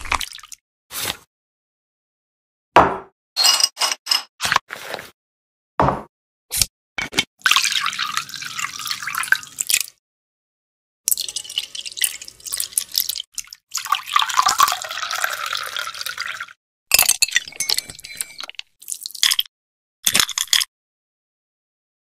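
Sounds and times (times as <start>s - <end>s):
bar spoon clinking against glass: 3.4s - 4.3s, 16.9s - 18.5s
liquid pouring over ice: 7.4s - 9.9s, 11.1s - 16.6s.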